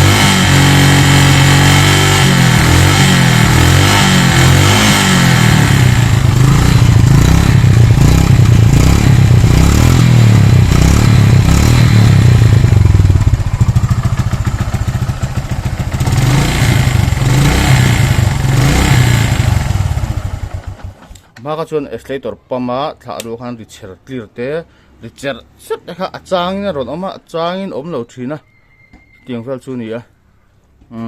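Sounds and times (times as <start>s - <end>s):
motorcycle engine revving: 0.0s - 21.2s.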